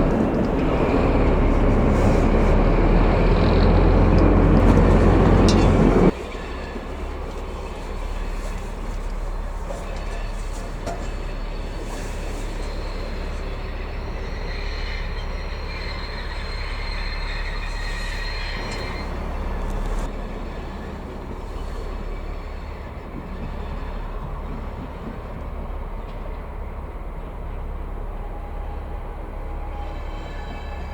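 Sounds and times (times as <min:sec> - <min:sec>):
train rumbling on rails: 0:00.0 - 0:30.9
wheel squeal: 0:00.6 - 0:24.1.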